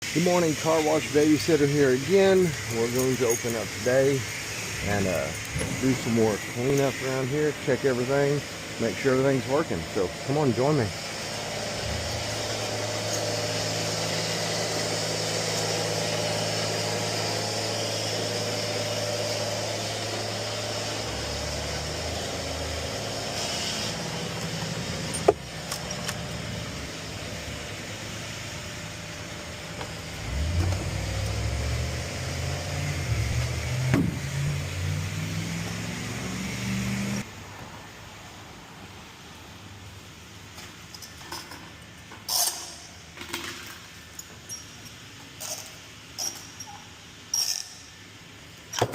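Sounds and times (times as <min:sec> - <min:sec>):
vehicle engine running: 0:00.4 - 0:23.2, 0:24.0 - 0:37.2.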